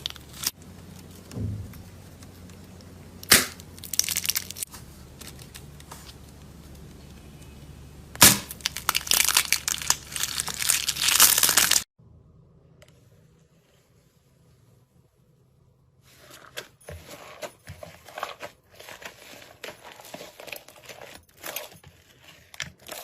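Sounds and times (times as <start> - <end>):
slime crackling and popping: 3.2 - 4.7, 8.2 - 11.9.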